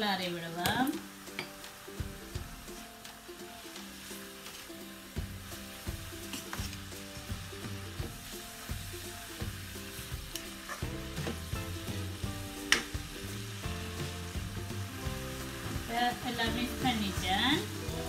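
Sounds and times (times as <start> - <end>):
cabbage sizzling in a wok: 0.0 - 18.0
wooden spatula scraping a pan: 5.9 - 7.5, 9.9 - 11.5.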